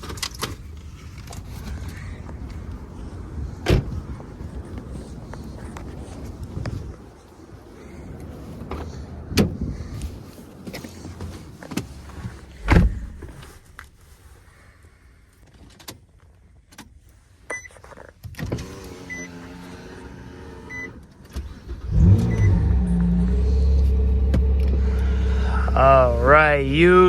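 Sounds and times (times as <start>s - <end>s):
loud thump: 12.6s - 13.4s
power window motor: 18.5s - 25.2s.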